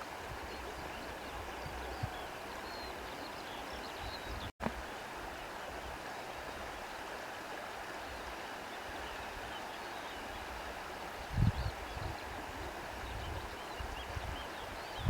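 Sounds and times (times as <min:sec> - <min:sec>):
rushing wind or water: 0:00.0 - 0:15.0.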